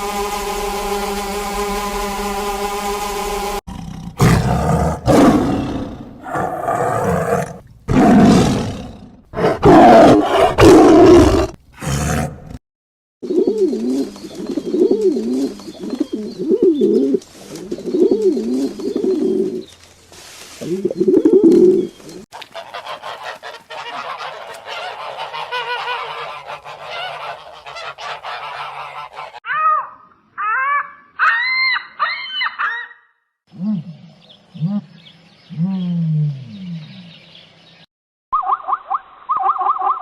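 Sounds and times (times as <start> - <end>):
chorus of higher bird calls: 21.8 - 33.1
low bird calls: 33.6 - 40.0
loud bird calls: 33.8 - 40.0.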